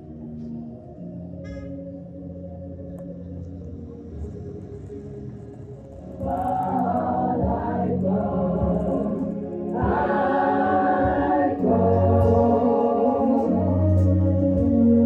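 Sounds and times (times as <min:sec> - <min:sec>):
organ chords: 0:00.0 - 0:15.0
choir singing gospel: 0:06.1 - 0:15.0.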